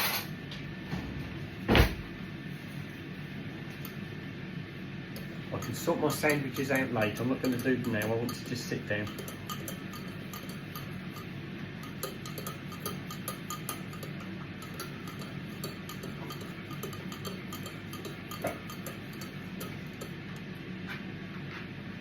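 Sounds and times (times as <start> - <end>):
cup ticking and clinking: 5.2 - 20.5.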